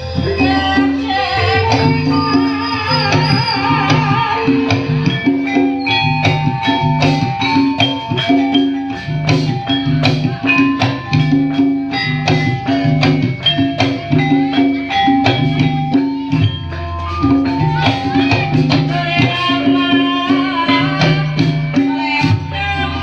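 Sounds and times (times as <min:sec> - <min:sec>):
tuned percussion notes: 0:00.0 - 0:23.0.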